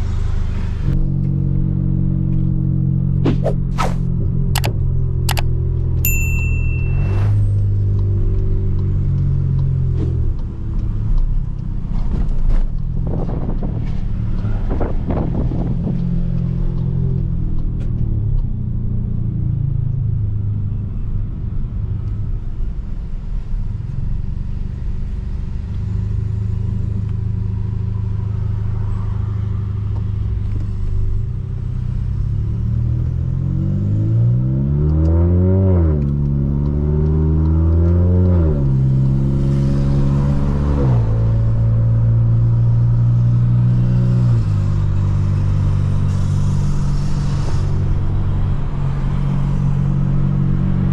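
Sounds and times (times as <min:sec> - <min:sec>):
car engine running: 0:00.9 - 0:19.4
engine revving: 0:32.0 - 0:50.9.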